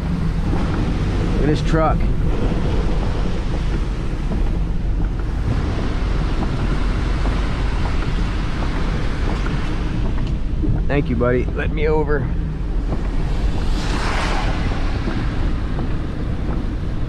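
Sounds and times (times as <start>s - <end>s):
hurricane wind and water rushing: 0.0s - 17.0s
vehicle driving through floodwater: 0.0s - 17.0s.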